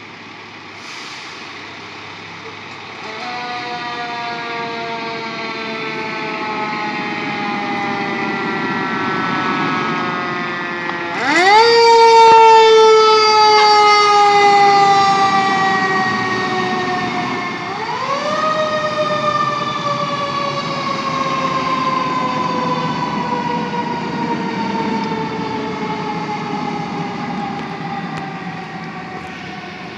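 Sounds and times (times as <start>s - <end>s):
mechanical siren whine: 3.0s - 29.9s.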